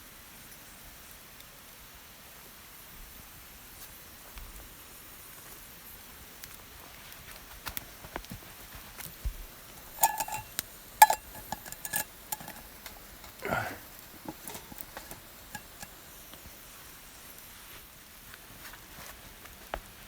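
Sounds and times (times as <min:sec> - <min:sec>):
bright ringing clinks: 0:09.8 - 0:13.0
tableware clinking: 0:09.8 - 0:15.9.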